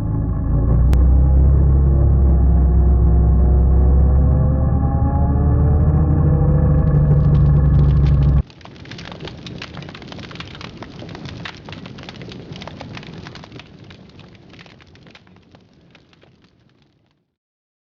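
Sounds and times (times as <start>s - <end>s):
dense crackle of clicks: 5.7s - 17.3s
quad bike engine running: 6.2s - 8.4s.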